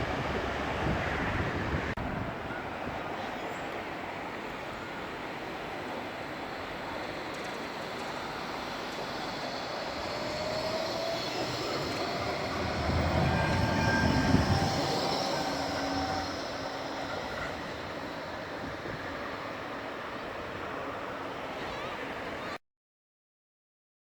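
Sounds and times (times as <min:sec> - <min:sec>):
tram rumbling past: 0:00.0 - 0:22.5
wheels squealing: 0:06.4 - 0:22.5.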